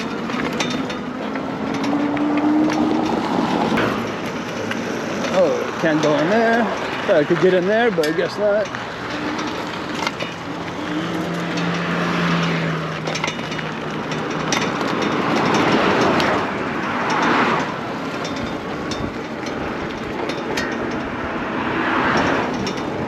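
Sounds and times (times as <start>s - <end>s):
traffic noise: 0.0s - 23.0s
tyre and wind noise: 0.0s - 23.0s
steady motor hum: 8.0s - 16.8s.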